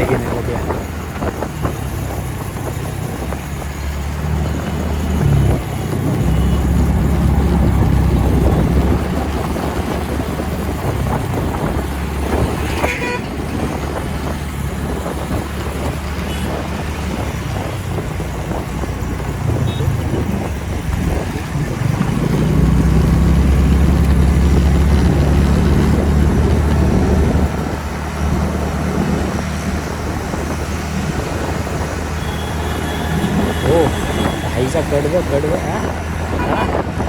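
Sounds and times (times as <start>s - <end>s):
wind rush: 0.0s - 37.0s
vehicle horn toot: 12.6s - 13.4s, 32.2s - 34.8s, 36.3s - 36.8s
scooter engine droning: 19.3s - 37.0s.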